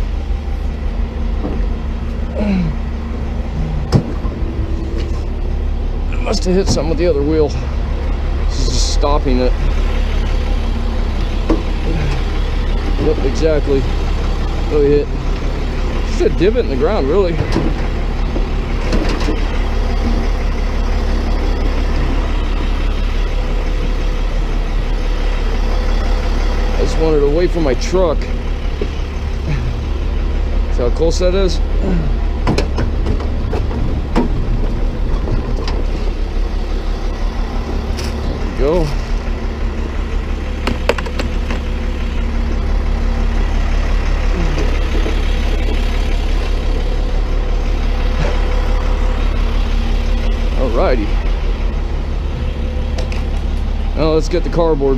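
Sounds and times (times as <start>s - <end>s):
truck engine idling: 0.0s - 54.9s.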